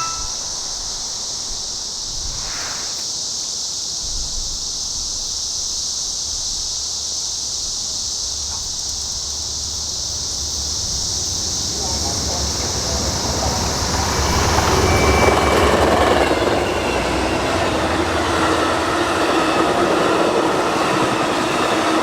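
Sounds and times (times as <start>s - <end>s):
cicadas buzzing: 0.0s - 22.0s.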